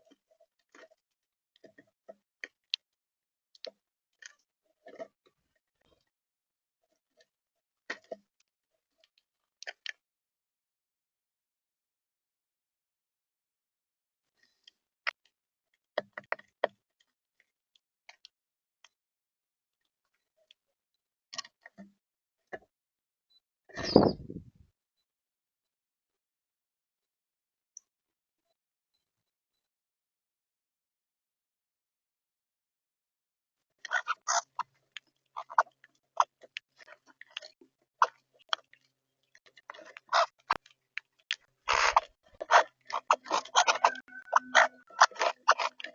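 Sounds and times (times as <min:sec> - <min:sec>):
birds pecking at seed: 0:33.9 - 0:38.9, 0:39.6 - 0:45.9
beaks pecking on bird feeder: 0:41.3 - 0:45.9.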